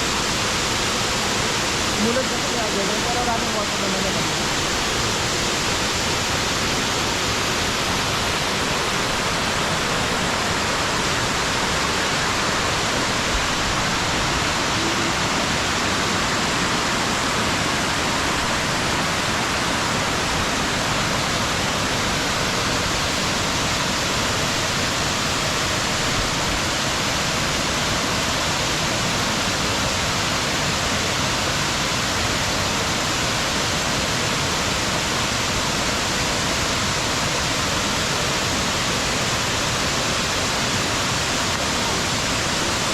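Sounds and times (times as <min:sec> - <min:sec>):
small waterfall pouring into pool: 0:00.0 - 0:42.9.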